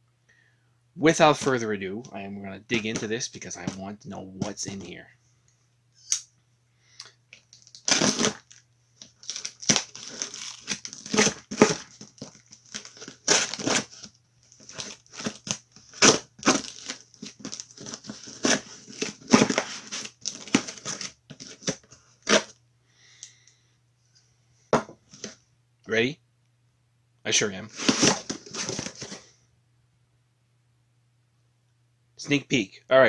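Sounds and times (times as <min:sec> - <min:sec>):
faint low hum: 0:00.0 - 0:33.0
packing tape tearing: 0:07.5 - 0:22.5, 0:27.7 - 0:29.2.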